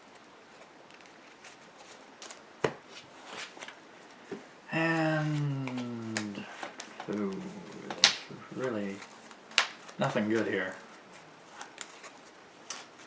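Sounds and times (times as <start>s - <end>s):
person saying ooh: 4.7s - 8.6s
cards clicking on a table: 5.3s - 10.8s.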